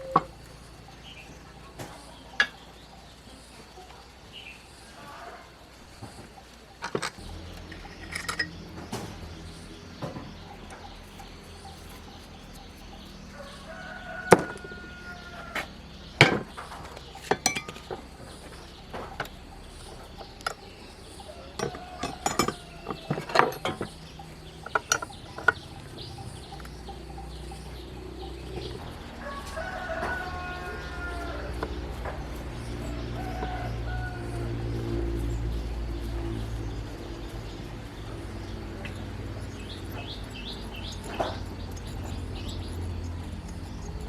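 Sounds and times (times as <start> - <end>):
chickens clucking: 0.0 - 44.0
rooster crowing: 4.9 - 5.8, 13.2 - 16.1, 21.2 - 23.6, 27.7 - 36.4
metal tools clinking and knocking: 6.8 - 9.2, 16.2 - 18.2, 21.5 - 26.3.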